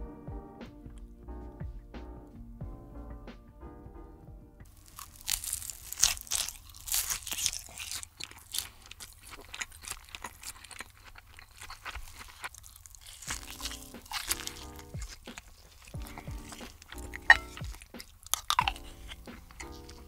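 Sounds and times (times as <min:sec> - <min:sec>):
crunchy biting and chewing: 0:04.7 - 0:20.0.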